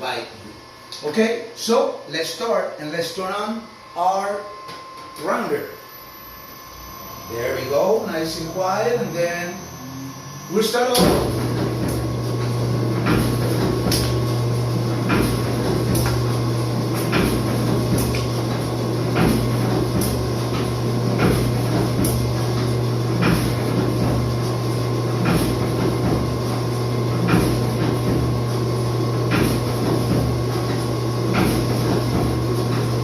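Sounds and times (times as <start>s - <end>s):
machine motor hum: 0.0s - 33.0s
machine knocking: 10.9s - 14.4s, 15.0s - 24.5s, 25.1s - 28.5s, 29.2s - 33.0s.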